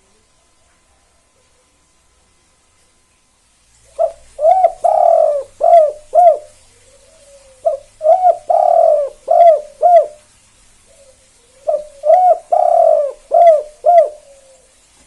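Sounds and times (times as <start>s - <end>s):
dove cooing: 3.8s - 14.8s.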